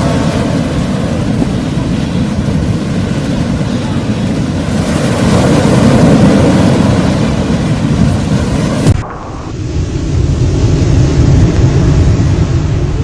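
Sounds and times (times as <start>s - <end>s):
waves breaking on beach: 0.0s - 9.0s
wind on microphone: 0.0s - 13.0s.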